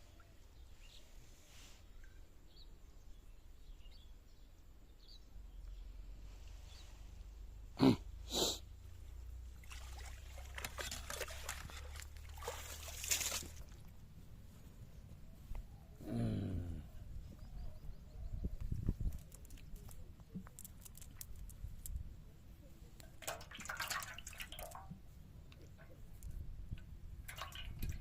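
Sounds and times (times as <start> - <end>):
water splashing and sloshing: 9.3 - 14.1, 23.0 - 28.0.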